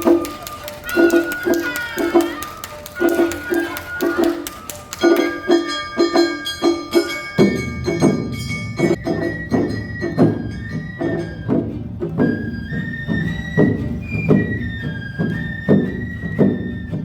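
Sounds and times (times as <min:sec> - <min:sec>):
bell struck in rhythm: 0:00.0 - 0:12.1
bamboo flute melody: 0:00.0 - 0:17.0
drums beating: 0:00.0 - 0:17.0.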